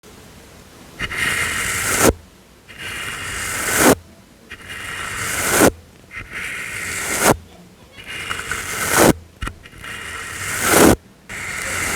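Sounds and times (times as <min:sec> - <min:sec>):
soft brush strokes: 0:01.0 - 0:11.9.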